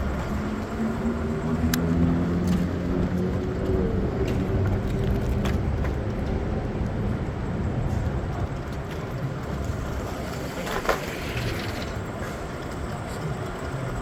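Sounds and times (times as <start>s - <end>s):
vehicle rumble: 0.0s - 14.0s.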